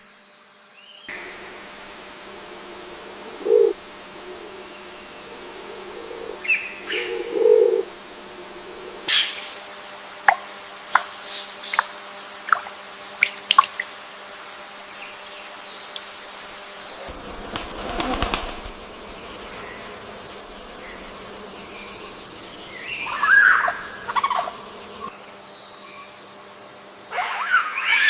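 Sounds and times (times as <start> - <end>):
wing flapping: 1.1 - 9.1, 16.3 - 25.1
bird calls: 2.7 - 9.4, 16.4 - 25.1
bird chirps: 17.0 - 25.1.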